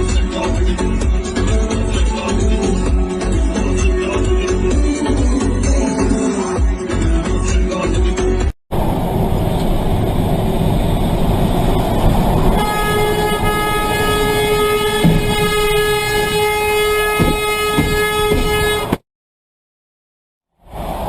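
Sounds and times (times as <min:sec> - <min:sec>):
traffic rumble: 0:08.7 - 0:19.0, 0:20.6 - 0:21.0
vehicle horn blast: 0:12.6 - 0:19.0.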